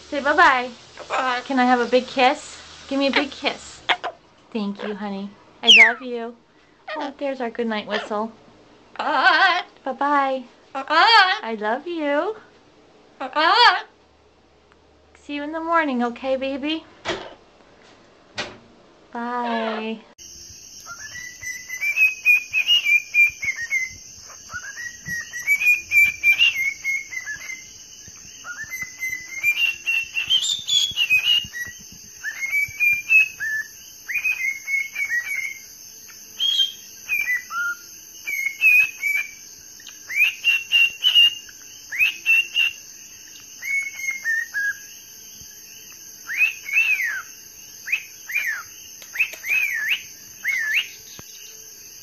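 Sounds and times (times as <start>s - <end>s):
high-pitched hiss: 0.0s - 6.9s, 20.1s - 52.0s
bird chirping and whistling: 5.6s - 6.0s, 20.8s - 42.8s, 43.4s - 44.9s, 46.2s - 51.5s.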